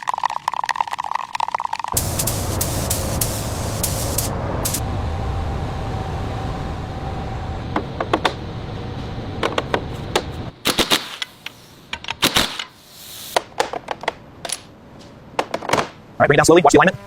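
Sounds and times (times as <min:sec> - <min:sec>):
steady noise: 0:02.0 - 0:10.7.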